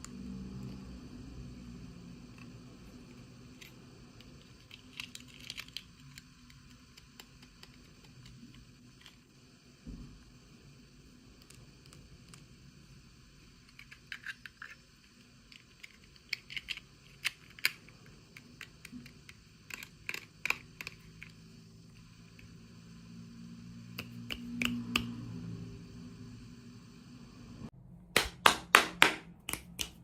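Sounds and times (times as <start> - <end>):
plastic pieces clicking: 4.4 - 8.4, 15.6 - 21.4
low hum: 21.2 - 28.3.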